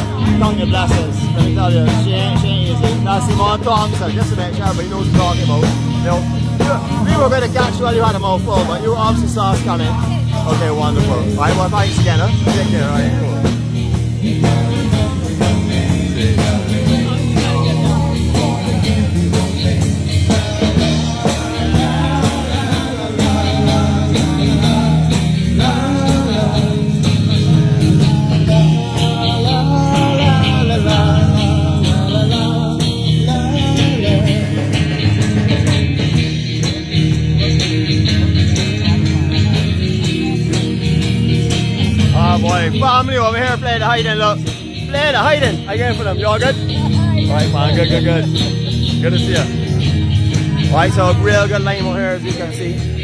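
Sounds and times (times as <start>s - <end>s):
person singing: 0.0s - 36.2s
bass: 0.0s - 53.0s
drums: 0.0s - 53.0s
electric guitar: 0.0s - 53.0s.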